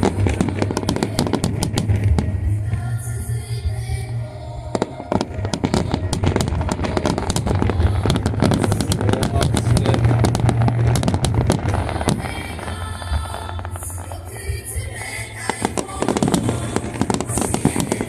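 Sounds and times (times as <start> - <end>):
fireworks bursting: 0.0 - 18.0.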